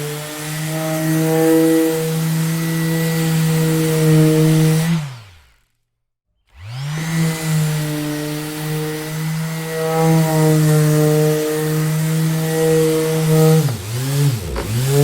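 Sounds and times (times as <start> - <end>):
orbital sander motor hum: 6.6 - 15.0.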